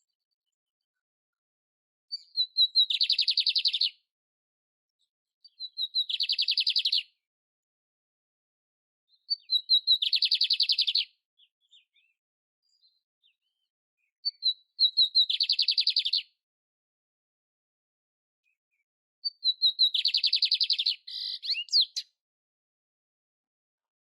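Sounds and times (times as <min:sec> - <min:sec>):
bird singing with rapid trill: 0:02.1 - 0:04.0, 0:05.4 - 0:07.2, 0:09.1 - 0:16.4, 0:18.5 - 0:22.2.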